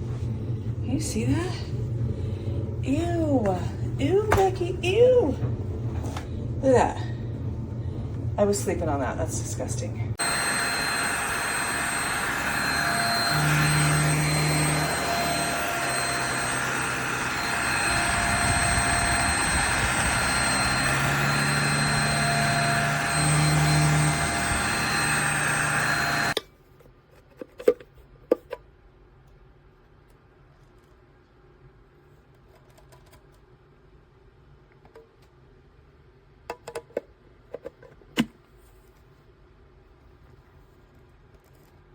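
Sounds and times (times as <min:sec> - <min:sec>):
handheld vacuum whining: 0:10.2 - 0:26.4.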